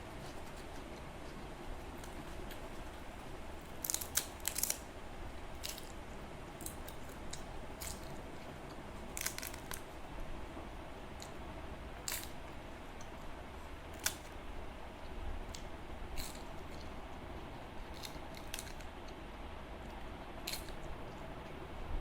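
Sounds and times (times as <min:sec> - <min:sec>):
person chewing crisp food: 0:00.1 - 0:04.9, 0:05.5 - 0:10.0, 0:12.0 - 0:13.2, 0:15.5 - 0:19.2.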